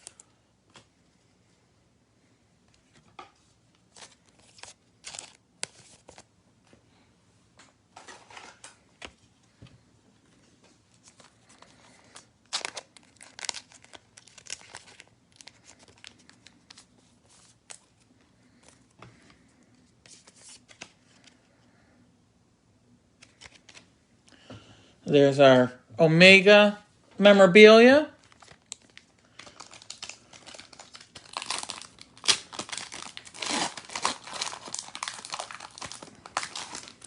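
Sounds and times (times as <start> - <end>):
plastic wrapper crinkling: 3.8 - 6.3, 10.9 - 18.9, 28.2 - 37.0.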